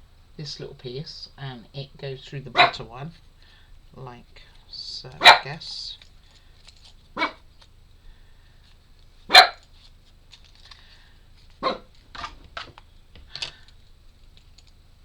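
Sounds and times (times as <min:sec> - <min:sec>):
dog barking: 0:02.6 - 0:02.8, 0:05.2 - 0:05.5, 0:07.2 - 0:07.4, 0:09.3 - 0:09.6, 0:11.6 - 0:11.9.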